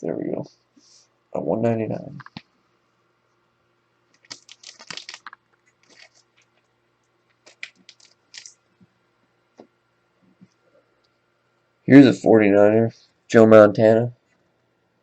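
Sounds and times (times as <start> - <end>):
trading cards rustling: 4.1 - 8.6.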